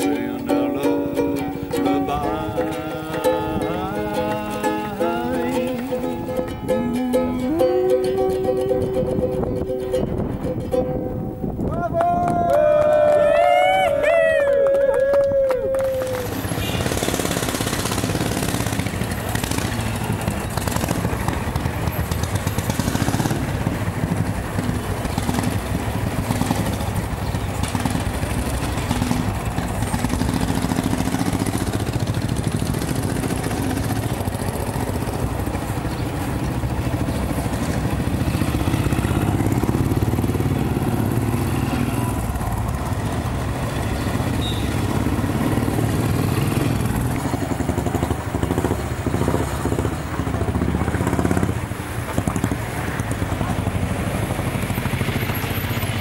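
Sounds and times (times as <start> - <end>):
motorcycle engine running: 16.2 - 56.0.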